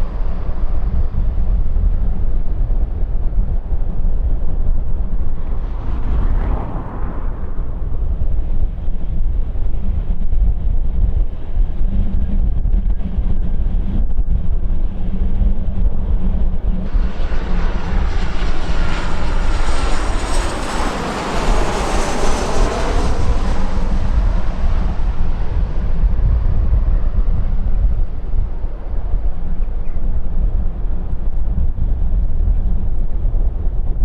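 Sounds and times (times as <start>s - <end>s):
jet airliner engine whine: 0.0s - 34.0s
wind on microphone: 0.0s - 34.0s.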